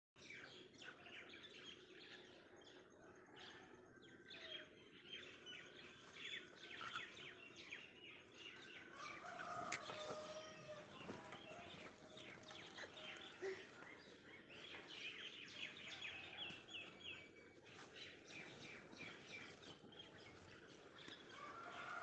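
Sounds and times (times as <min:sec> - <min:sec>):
small birds chirping faintly: 0:00.2 - 0:22.0.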